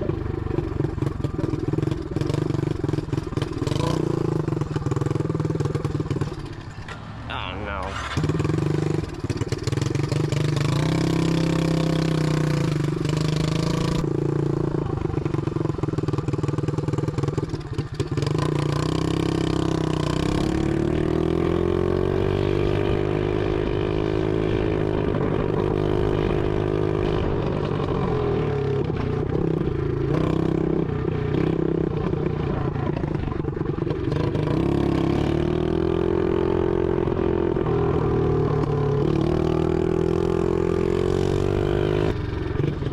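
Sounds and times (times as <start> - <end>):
loud dirt bike engine revving: 1.0 - 6.2, 7.3 - 14.1, 18.2 - 27.4, 34.0 - 42.2.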